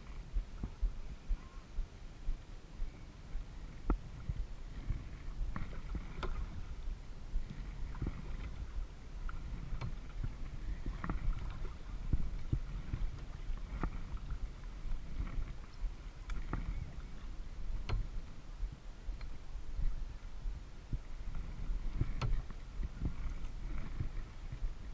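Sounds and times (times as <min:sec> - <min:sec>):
wind on camera: 0:00.0 - 0:24.9
paddle splashing in water: 0:03.5 - 0:18.5, 0:20.8 - 0:24.9.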